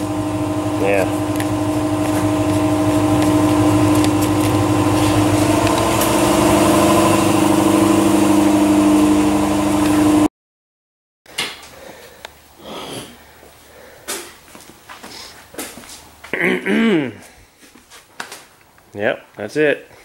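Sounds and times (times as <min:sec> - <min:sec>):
car engine idling: 0:00.0 - 0:09.2.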